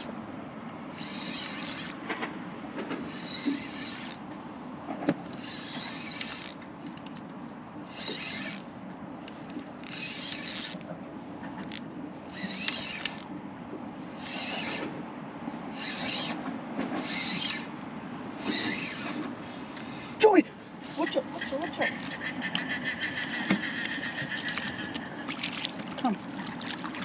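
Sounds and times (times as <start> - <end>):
fishing reel winding: 1.1 - 2.0, 3.9 - 4.2, 6.2 - 7.2, 8.1 - 8.7, 9.5 - 10.8, 11.7 - 13.3, 21.9 - 22.3.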